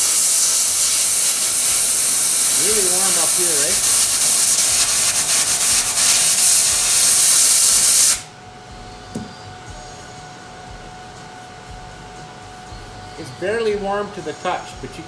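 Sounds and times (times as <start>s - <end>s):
compressed air hissing: 0.0s - 8.3s.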